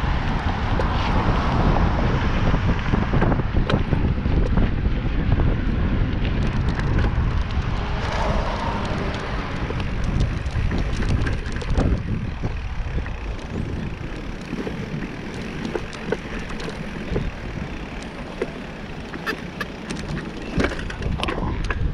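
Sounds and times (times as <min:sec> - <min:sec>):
bicycle tyre and road noise: 0:00.0 - 0:21.9
wind rumbling on microphone: 0:00.0 - 0:21.9
small clicks and rattles: 0:06.1 - 0:21.9.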